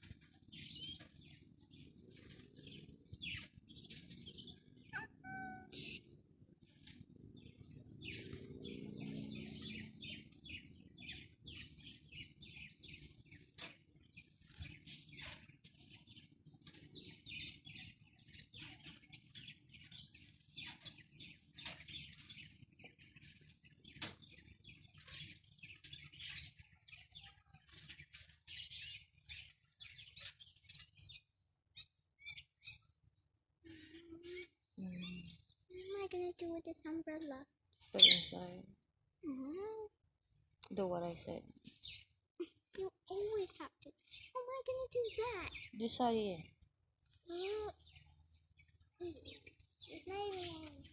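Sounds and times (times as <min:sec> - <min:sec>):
parrots chirping and squawking: 0:02.1 - 0:06.2, 0:37.9 - 0:38.4.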